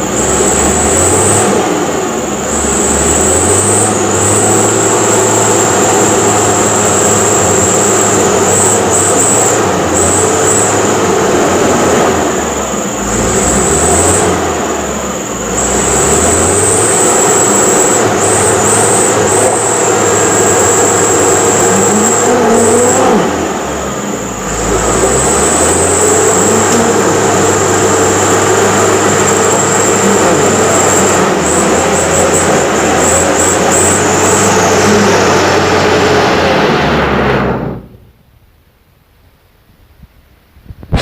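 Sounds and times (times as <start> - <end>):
truck engine revving: 0.0 - 38.1.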